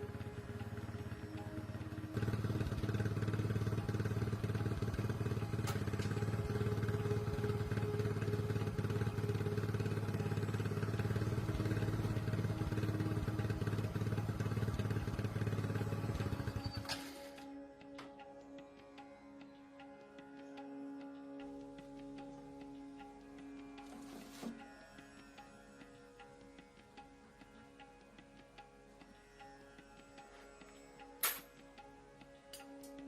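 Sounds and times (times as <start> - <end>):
motorcycle engine idling: 0.0 - 17.4.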